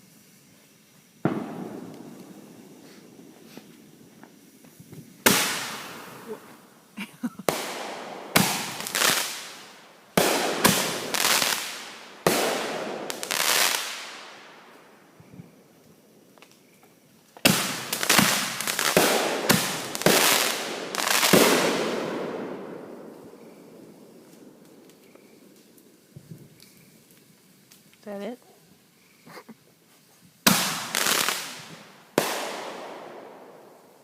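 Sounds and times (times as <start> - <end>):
fireworks booming and banging: 1.2 - 4.3, 4.9 - 6.6, 7.5 - 9.6, 10.2 - 14.2, 17.4 - 23.7, 30.4 - 33.6.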